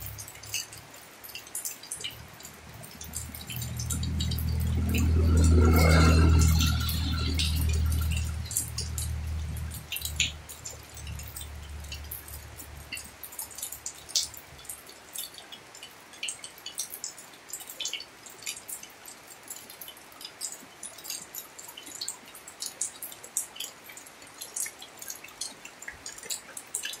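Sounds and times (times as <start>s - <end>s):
rain on paving and plants: 0.0s - 27.0s
sharp irregular drips: 0.0s - 27.0s
low rumble: 2.1s - 12.9s.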